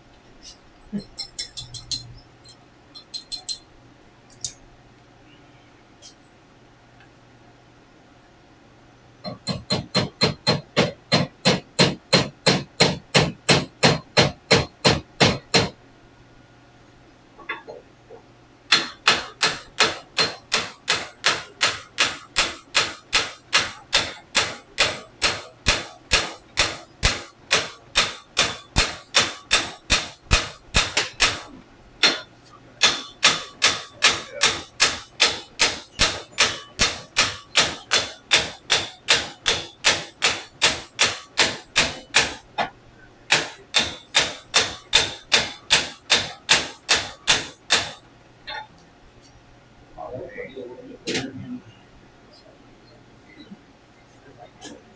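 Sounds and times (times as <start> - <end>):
hammer striking metal: 9.3 - 15.8, 18.7 - 42.4, 43.3 - 48.7.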